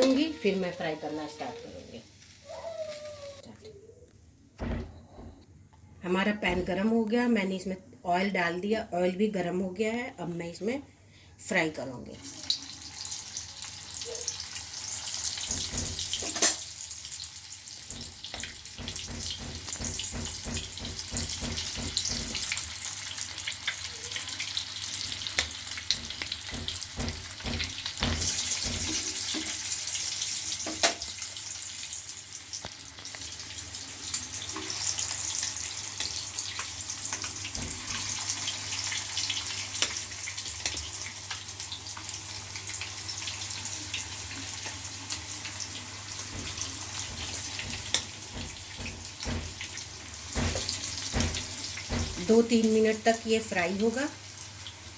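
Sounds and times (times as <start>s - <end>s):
food sizzling in hot oil: 12.2s - 54.9s.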